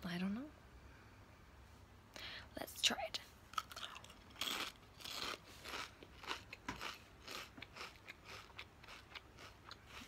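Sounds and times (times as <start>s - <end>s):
person chewing potato chips: 3.5s - 10.0s.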